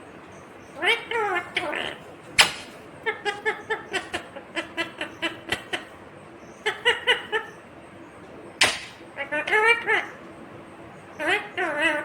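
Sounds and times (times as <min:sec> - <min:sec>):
parakeet chattering calls: 0:00.6 - 0:07.7, 0:08.6 - 0:10.2, 0:11.1 - 0:12.0
sharp click: 0:08.6 - 0:09.0.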